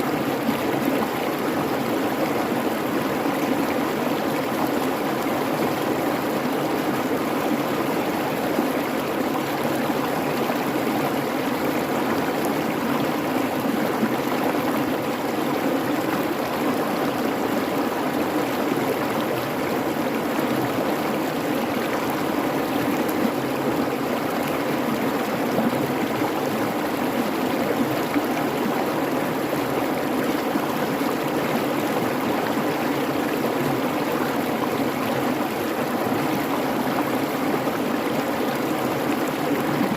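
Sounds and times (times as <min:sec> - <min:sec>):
creek babbling: 0:00.0 - 0:39.9.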